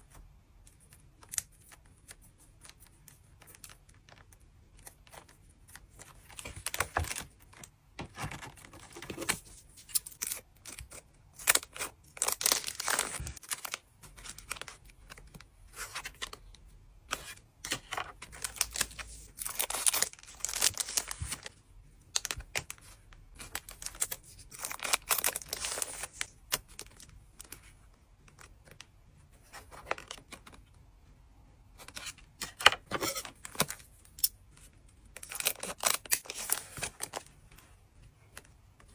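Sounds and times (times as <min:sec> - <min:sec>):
card pack wrappers tearing: 0:08.3 - 0:14.7, 0:17.7 - 0:21.4, 0:23.4 - 0:27.0.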